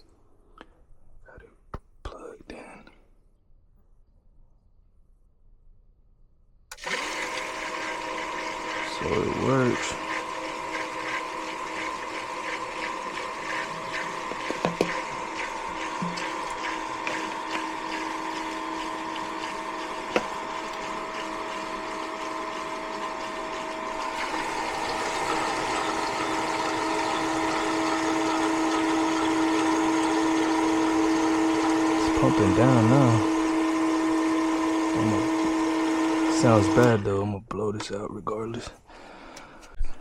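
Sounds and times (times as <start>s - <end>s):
pump motor humming with rattle: 6.7s - 37.1s.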